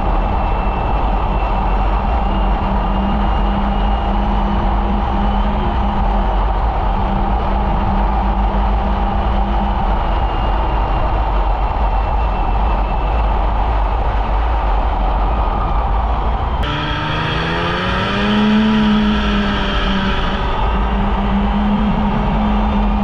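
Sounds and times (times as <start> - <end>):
steady rushing noise: 13.2 - 23.0
snowmobile engine revving: 16.6 - 23.0.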